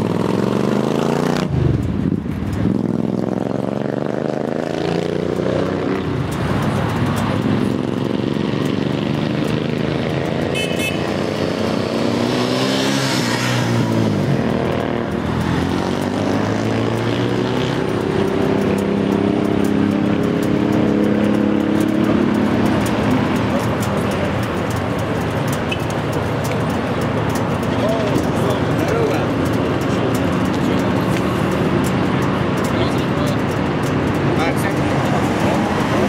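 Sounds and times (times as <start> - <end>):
motorcycle engines revving: 0.0 - 36.0
short horn toot: 10.5 - 11.0.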